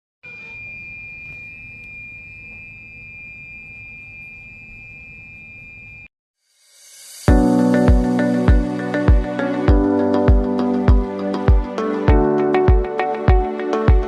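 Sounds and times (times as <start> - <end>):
espresso machine whistling: 0.2 - 6.1.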